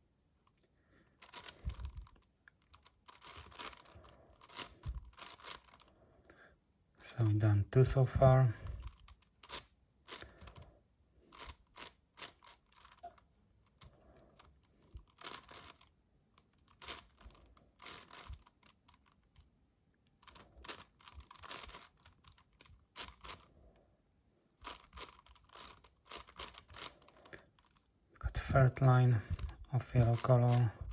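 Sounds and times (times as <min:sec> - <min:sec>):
puzzle cube plastic clicking: 0:00.4 - 0:05.9, 0:08.8 - 0:10.7, 0:11.3 - 0:23.5, 0:24.6 - 0:27.9.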